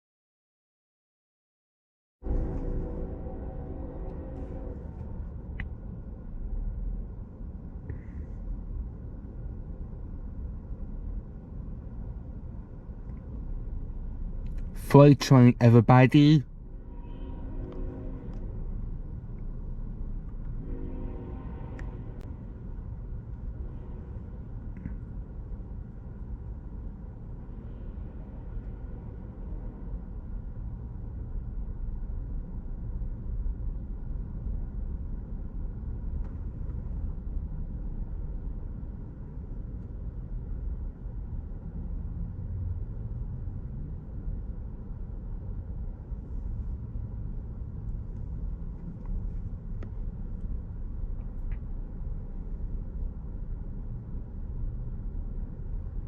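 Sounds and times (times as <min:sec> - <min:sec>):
freight train rumbling past: 0:02.2 - 0:07.8, 0:16.5 - 0:31.6.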